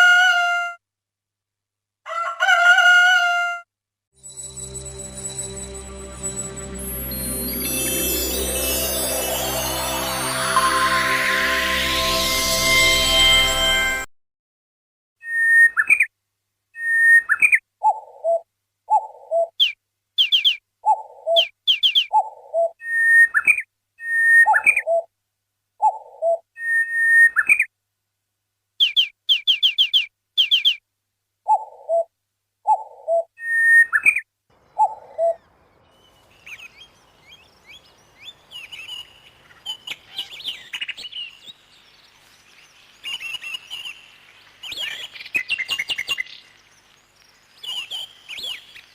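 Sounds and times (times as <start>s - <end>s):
whistled bird calls: 15.2s - 16.0s, 33.4s - 34.2s
busy bird chirping: 16.8s - 25.1s, 28.8s - 30.8s, 32.7s - 48.9s.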